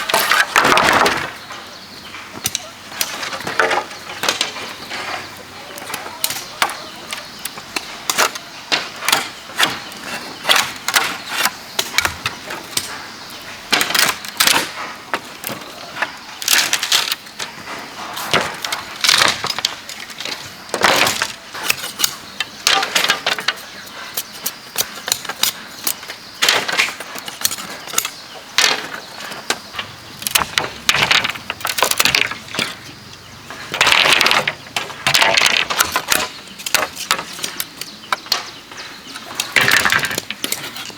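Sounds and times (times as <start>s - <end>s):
knocks and cracks chopping bamboo: 5.8s - 13.0s, 13.7s - 15.6s, 18.3s - 32.9s, 33.5s - 38.6s.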